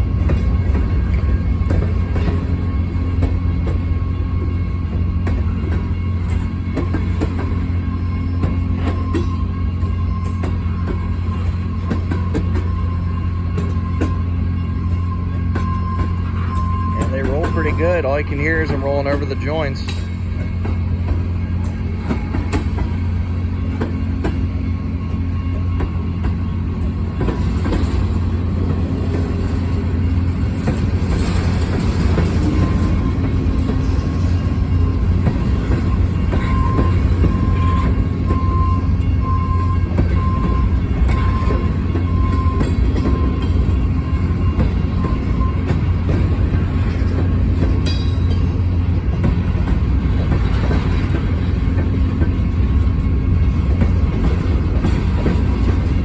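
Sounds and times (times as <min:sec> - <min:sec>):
freight train rumble: 0:00.0 - 0:56.0
wheels clicking over rail joints: 0:25.8 - 0:56.0.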